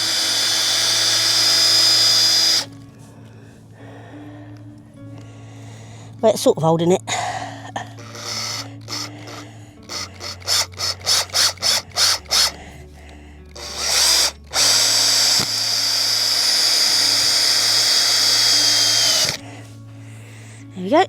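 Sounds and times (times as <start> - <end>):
power drill whining: 0.0 - 2.8, 7.9 - 19.8.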